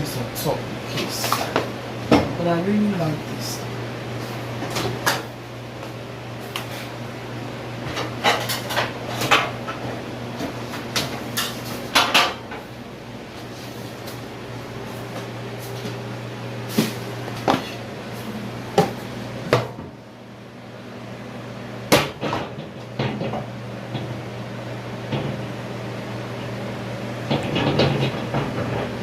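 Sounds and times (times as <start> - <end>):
kitchen knocks and clunks: 1.3 - 2.4, 7.9 - 12.6, 18.8 - 20.0, 21.9 - 24.2, 25.1 - 25.4, 27.2 - 29.0.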